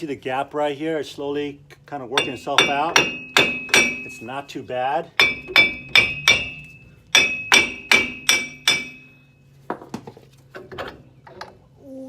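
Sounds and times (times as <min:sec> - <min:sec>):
hammer striking metal hub: 0:02.1 - 0:09.4.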